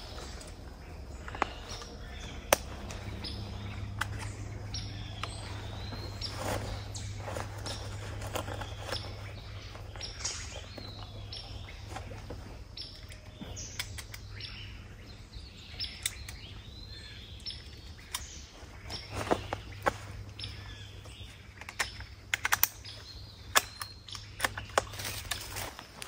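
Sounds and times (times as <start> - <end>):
birds chirping: 0.0 - 26.0
sharp clicks: 1.2 - 5.4, 12.9 - 14.5, 15.7 - 16.6, 21.4 - 25.6.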